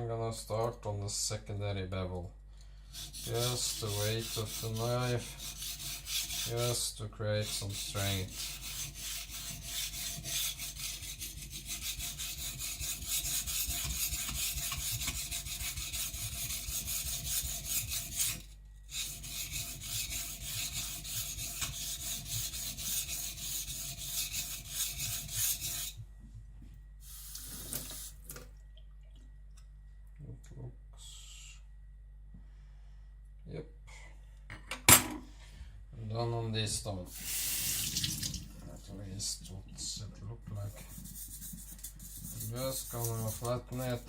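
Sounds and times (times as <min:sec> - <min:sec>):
blade scraping on whetstone: 0:03.0 - 0:06.8, 0:07.4 - 0:26.0, 0:40.8 - 0:44.0.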